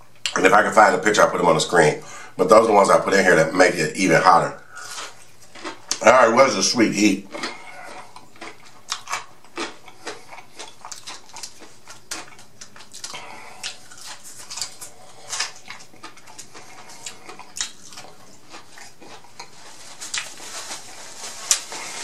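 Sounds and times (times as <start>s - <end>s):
chewing with mouth clicks: 4.8s - 6.1s, 7.3s - 20.3s.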